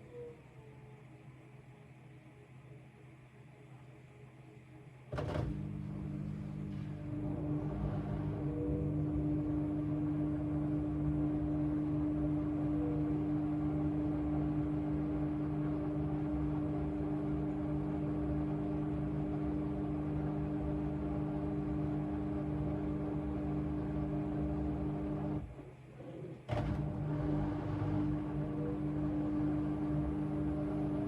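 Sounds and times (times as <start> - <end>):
washing machine humming: 5.1 - 31.0.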